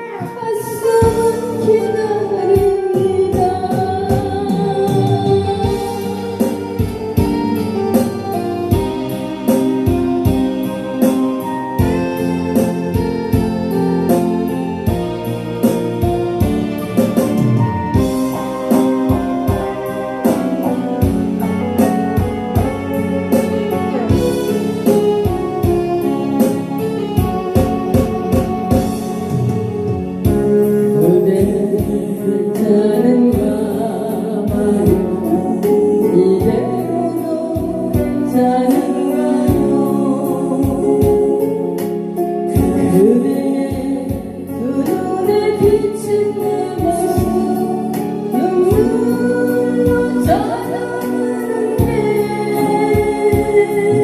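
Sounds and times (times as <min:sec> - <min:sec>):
bass line: 0:00.0 - 0:54.0
guitar: 0:00.0 - 0:54.0
keyboard: 0:00.0 - 0:54.0
steady drum beat: 0:02.6 - 0:32.2.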